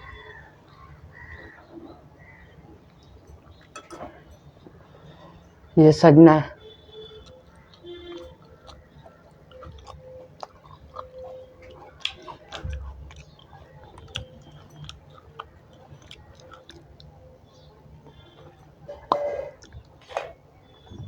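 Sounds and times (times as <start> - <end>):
person chewing food: 6.6 - 21.0
wet mouth smacking: 7.2 - 17.1.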